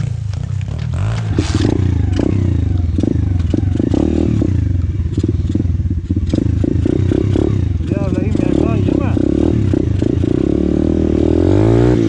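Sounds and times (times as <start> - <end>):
bike rattling over dirt: 0.0 - 4.0
motorbike engine running: 0.0 - 12.0.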